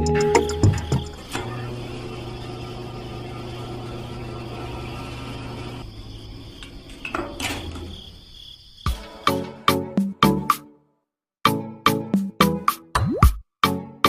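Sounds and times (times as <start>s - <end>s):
small electric motor humming: 1.2s - 5.8s.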